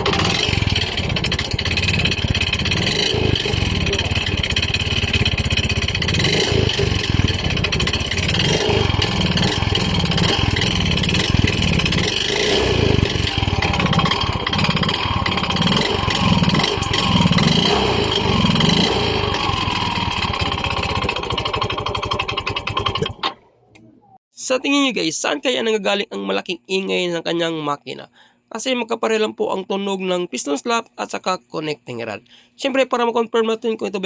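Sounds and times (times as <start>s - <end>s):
motorcycle engine knocking: 0.0s - 23.2s.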